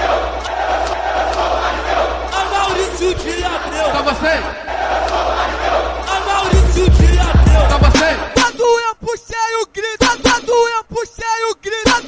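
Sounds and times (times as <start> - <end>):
funk music with heavy bass: 6.6 - 8.4.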